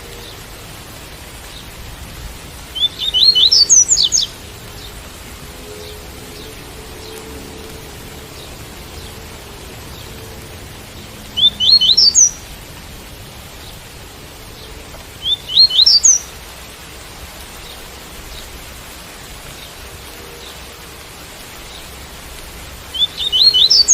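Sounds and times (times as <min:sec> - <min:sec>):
rain hissing: 0:00.0 - 0:23.9
bird singing quick rising notes: 0:02.8 - 0:04.9, 0:11.4 - 0:12.4, 0:15.2 - 0:16.3, 0:22.9 - 0:23.9.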